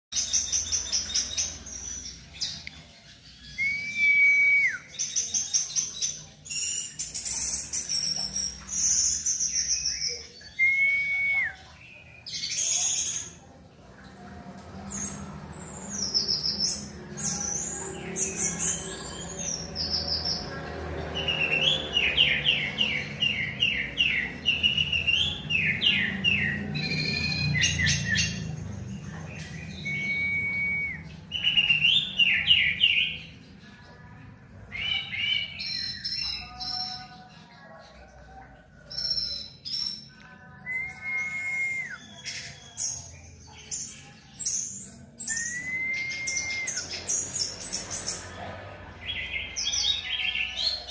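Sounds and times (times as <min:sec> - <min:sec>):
thrush singing: 0:44.7 - 0:50.9.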